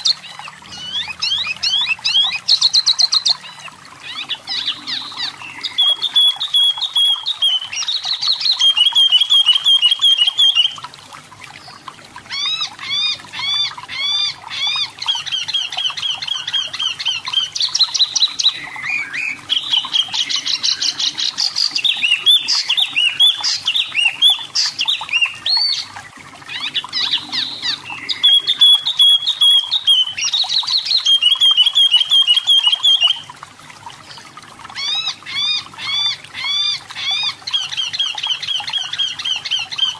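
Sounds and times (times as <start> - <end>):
songbird singing trills: 0.0 - 10.9, 13.6 - 33.3.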